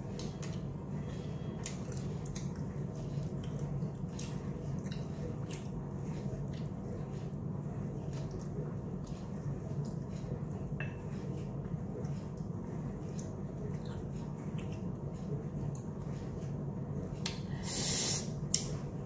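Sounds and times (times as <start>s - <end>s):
steady low hum: 0.0s - 19.0s
wet chewing and lip-smacking: 1.6s - 7.4s.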